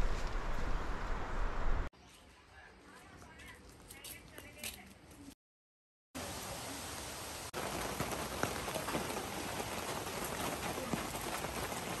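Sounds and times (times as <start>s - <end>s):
rain falling: 6.2s - 12.0s
raindrop hits: 7.5s - 12.0s.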